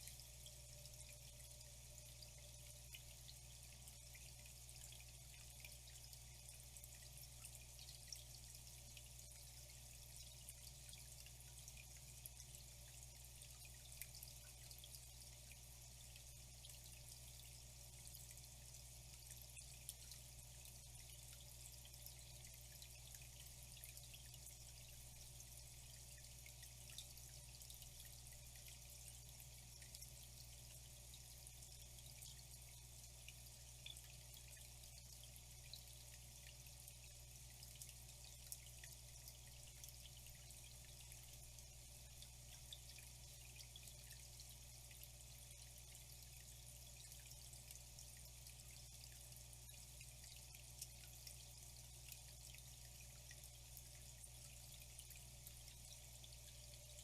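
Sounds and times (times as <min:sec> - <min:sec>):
water dripping: 0:00.0 - 0:57.0
water trickling: 0:00.0 - 0:57.0.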